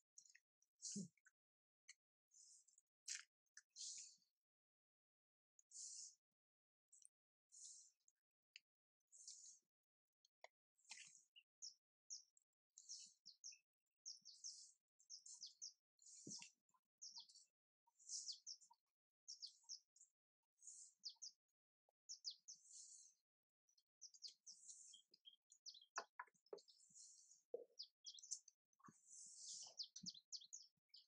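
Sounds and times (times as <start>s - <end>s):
faint high bird chirping: 10.8s - 31.0s.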